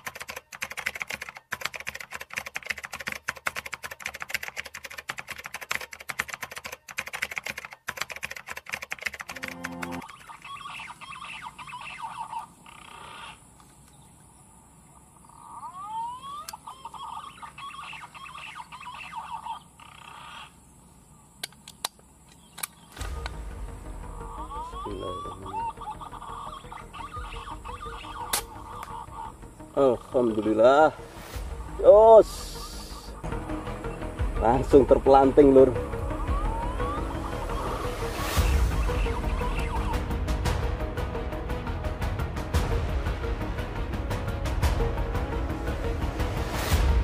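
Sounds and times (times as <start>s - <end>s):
fast dense clicks: 0.0s - 10.4s
sharp ticks: 0.0s - 10.5s
birds calling with whistled trills: 10.0s - 40.2s.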